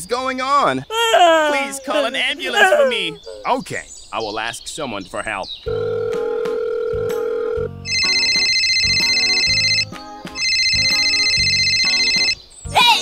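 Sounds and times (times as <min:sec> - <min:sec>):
dial tone: 0:05.7 - 0:09.8, 0:10.4 - 0:12.4
phone ringing: 0:05.7 - 0:12.4.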